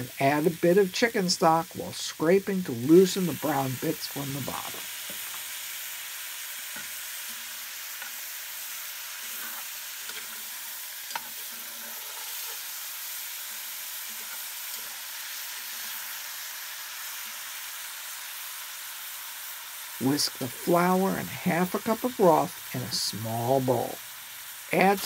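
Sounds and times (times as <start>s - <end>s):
vegetables sizzling in a pot: 0.0s - 25.0s
metal utensil scraping pot: 11.1s - 12.7s.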